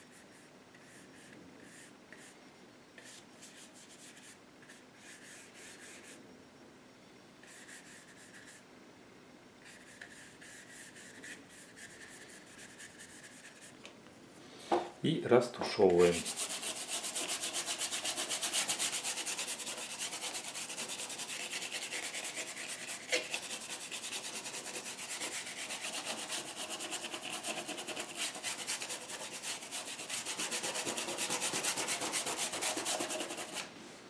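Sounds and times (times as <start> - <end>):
stiff brush scrubbing on canvas: 16.0 - 33.6.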